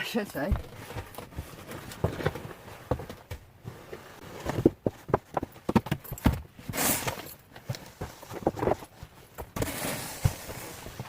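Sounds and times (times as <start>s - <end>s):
snow shovel knocking and scraping: 7.9s - 11.0s.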